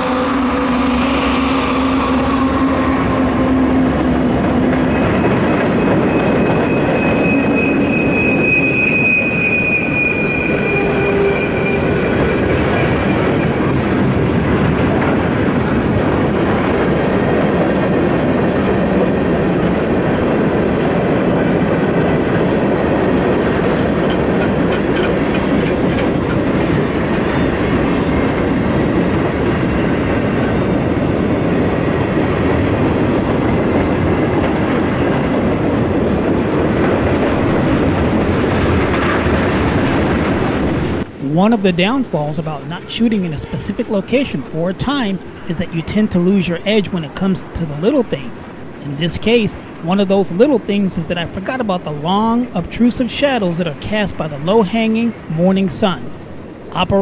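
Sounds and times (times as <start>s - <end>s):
locomotive tones: 0.0s - 18.7s, 36.4s - 57.0s
rumble of freight cars: 0.0s - 57.0s
clickety-clack over rail joints: 3.3s - 9.3s, 10.5s - 41.2s
high wheel squeal: 4.9s - 13.6s.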